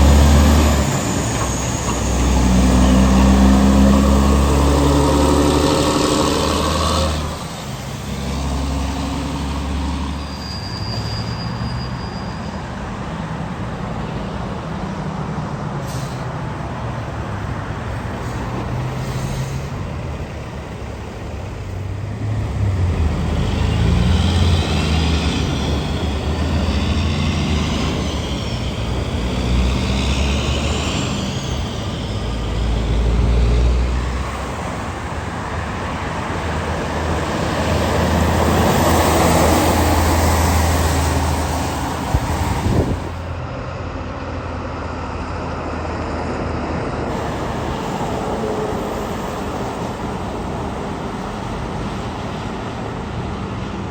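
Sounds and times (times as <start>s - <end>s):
vehicle passing: 0.0s - 10.2s, 21.6s - 43.4s
heavy truck engine passing: 0.0s - 53.9s
road traffic noise: 0.0s - 53.9s.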